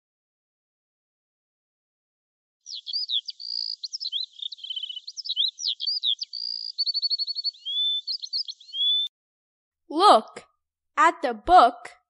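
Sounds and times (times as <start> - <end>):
songbird singing: 2.6 - 9.1.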